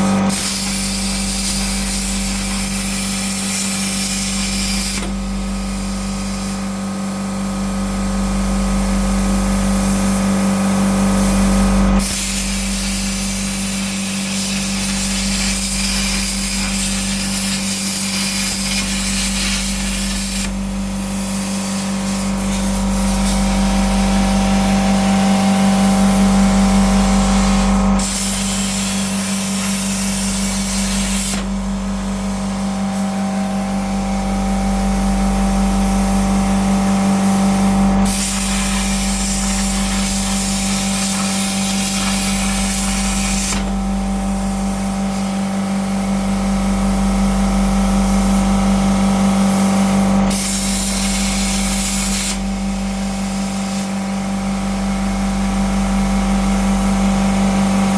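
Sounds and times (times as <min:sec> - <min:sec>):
plasma cutter hissing: 0:00.0 - 0:57.9.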